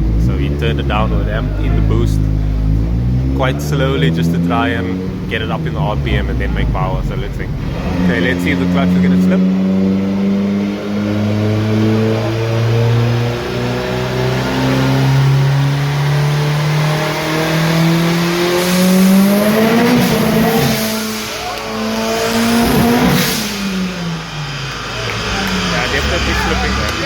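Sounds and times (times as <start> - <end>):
engine revving under load: 0.0 - 27.0
loud rushing burst: 17.6 - 27.0.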